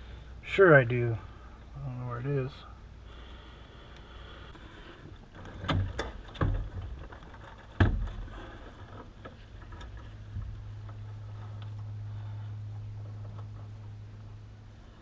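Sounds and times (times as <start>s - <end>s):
objects knocking and clunking: 5.3s - 11.0s.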